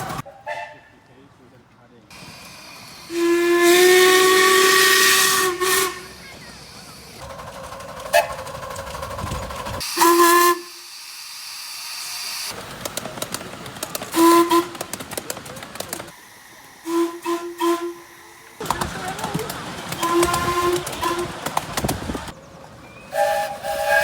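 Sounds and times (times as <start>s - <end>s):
steam hissing: 2.1s - 7.4s, 9.4s - 22.4s, 23.0s - 24.0s
steam whistle blowing: 3.0s - 6.2s, 9.8s - 10.9s, 16.8s - 18.3s, 20.0s - 21.4s, 23.0s - 24.0s.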